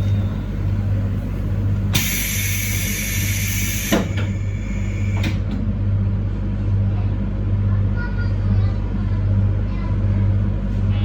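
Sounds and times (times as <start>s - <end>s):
train running low hum: 0.0s - 11.0s
loud high-pitched hiss: 1.9s - 5.3s.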